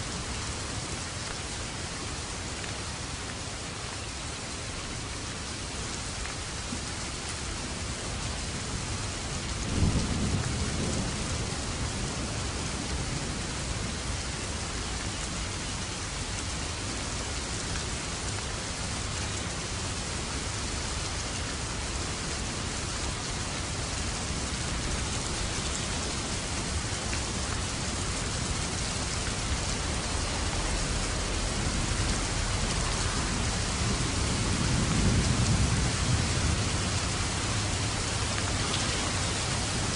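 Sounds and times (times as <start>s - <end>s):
heavy rain: 0.0s - 39.9s
thunder rumbling: 9.6s - 13.4s, 28.8s - 39.9s.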